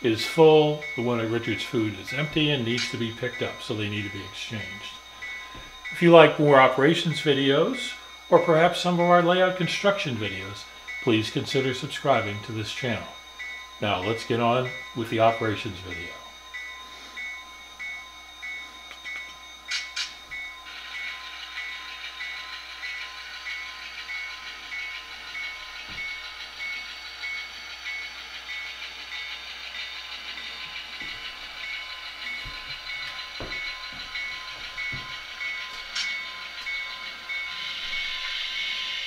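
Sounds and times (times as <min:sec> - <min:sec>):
diesel engine sound from small speaker: 0:00.0 - 0:05.1
hiss: 0:37.2 - 0:39.0.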